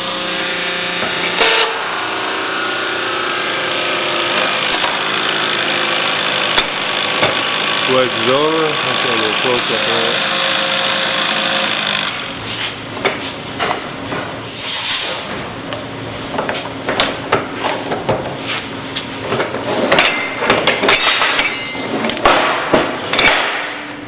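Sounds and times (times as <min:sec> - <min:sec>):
hydraulic hiss: 0:14.4 - 0:15.3
metal clinks and knocks: 0:19.8 - 0:23.4.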